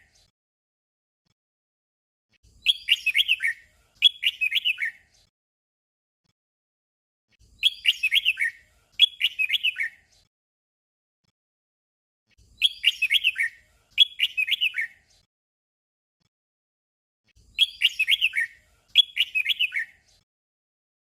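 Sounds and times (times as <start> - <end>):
bird singing warbled phrases: 2.4 - 5.3, 7.3 - 10.3, 12.3 - 15.3, 17.3 - 20.3.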